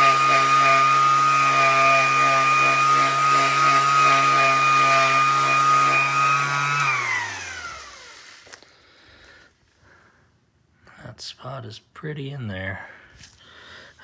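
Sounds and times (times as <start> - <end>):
sander motor spinning down: 0.0 - 8.7
electric sander on wood floor: 0.0 - 8.8.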